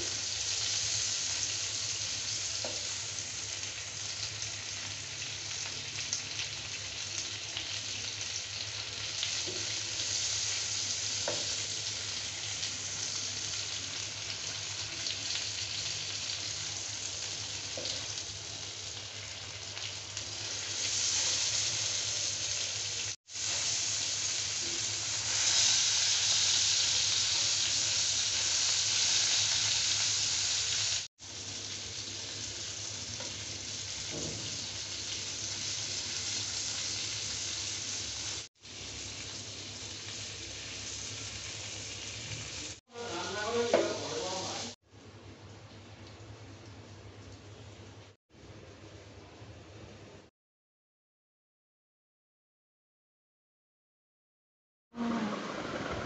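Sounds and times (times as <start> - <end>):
steak sizzling in a pan: 0.0 - 44.8.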